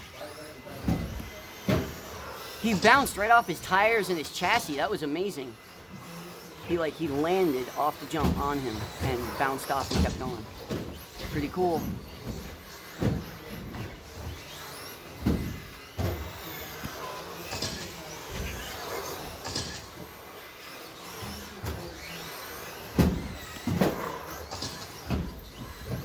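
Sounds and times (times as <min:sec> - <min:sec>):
electric motors whining: 0:00.0 - 0:26.0
track noise: 0:06.6 - 0:10.5
toy trucks thumping and clattering: 0:07.1 - 0:26.0.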